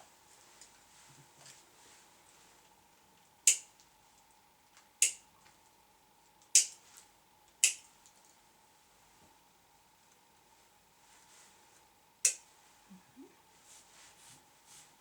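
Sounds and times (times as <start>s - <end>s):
scissors snipping hair: 7.6s - 7.8s.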